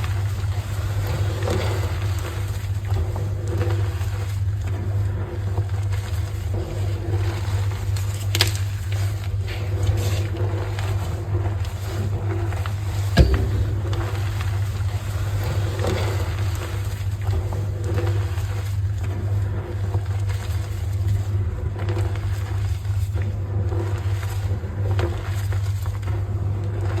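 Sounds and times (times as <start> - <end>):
steady low hum: 0.0 - 20.8.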